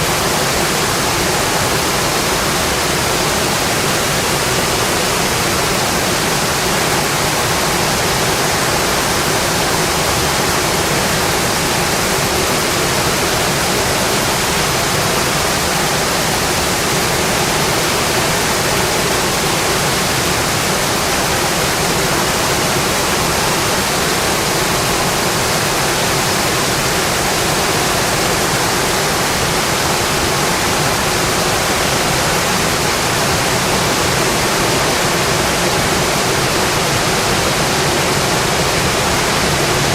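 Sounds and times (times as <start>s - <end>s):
rain on a windowpane: 0.0s - 39.9s.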